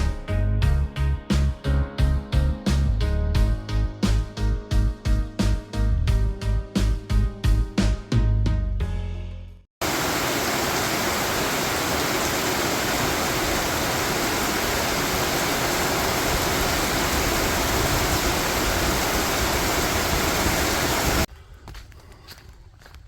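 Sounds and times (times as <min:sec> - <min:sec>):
steady rushing noise: 0:09.8 - 0:21.3.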